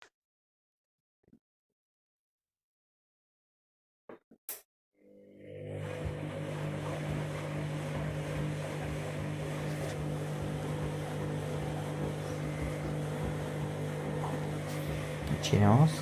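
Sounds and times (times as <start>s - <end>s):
washing machine motor hum: 5.0s - 16.0s
washing machine drum rushing: 5.8s - 16.0s.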